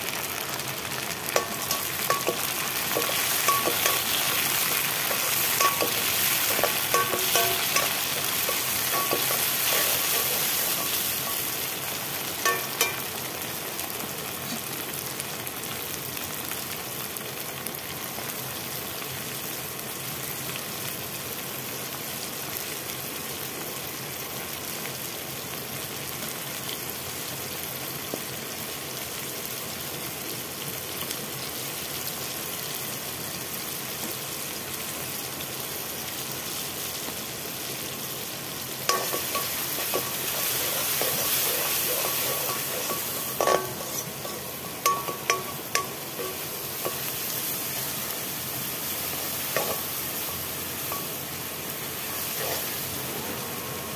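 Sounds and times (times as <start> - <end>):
onions sizzling in hot oil: 0.0 - 53.9
metal ladle clinking against pan: 1.4 - 11.5, 12.4 - 13.1, 38.9 - 47.1.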